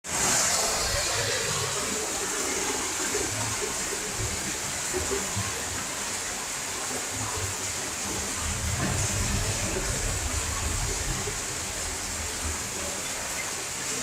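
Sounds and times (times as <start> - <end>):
heavy rain hissing: 0.0 - 14.0
low rumbling: 8.2 - 13.0.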